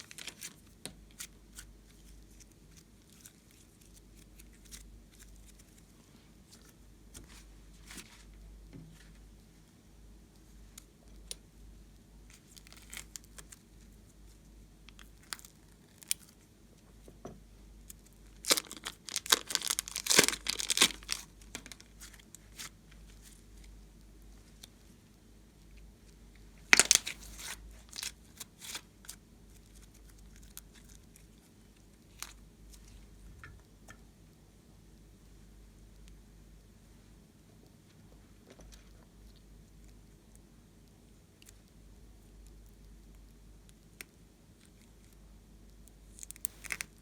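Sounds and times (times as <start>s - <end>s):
slime crackling and popping: 18.4s - 22.7s, 26.7s - 28.8s, 46.1s - 47.0s.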